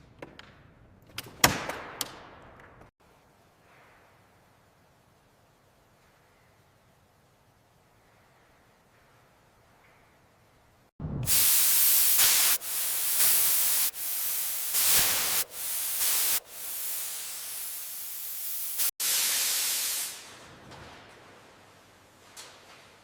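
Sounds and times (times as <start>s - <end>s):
compressed air hissing: 11.2s - 20.3s.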